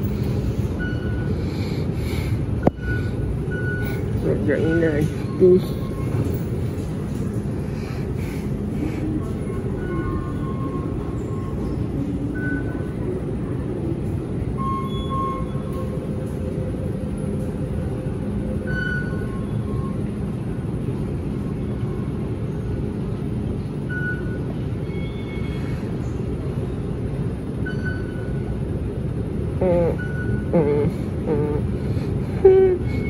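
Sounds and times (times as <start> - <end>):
train low rumble: 0.0 - 33.0.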